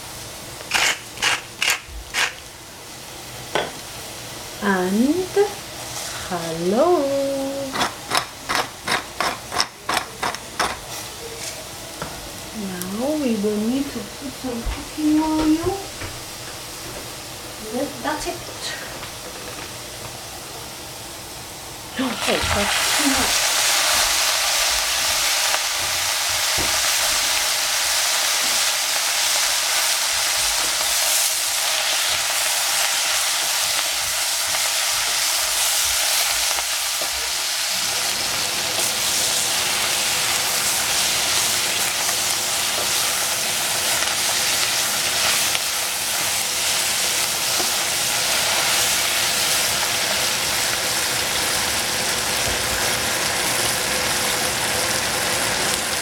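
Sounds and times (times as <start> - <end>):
vegetables sizzling in hot oil: 0.0 - 56.0.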